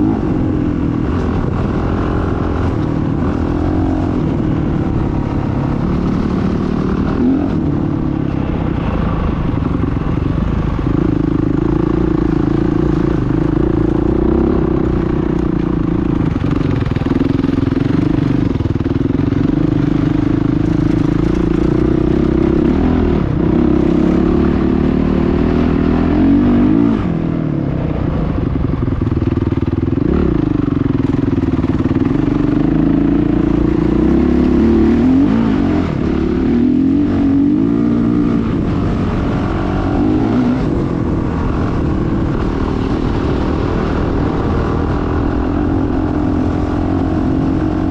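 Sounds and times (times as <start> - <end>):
motocross bike engine revving: 29.7 - 47.9.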